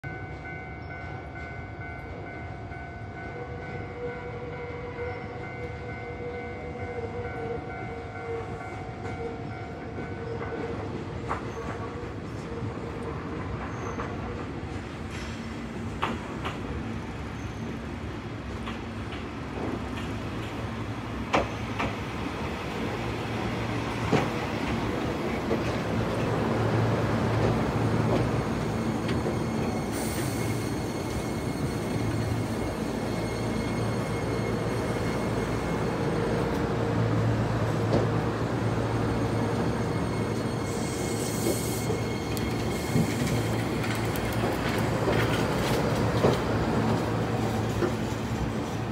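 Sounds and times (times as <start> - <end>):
wheel or brake squeals: 27.9 - 36.4, 38.6 - 48.4.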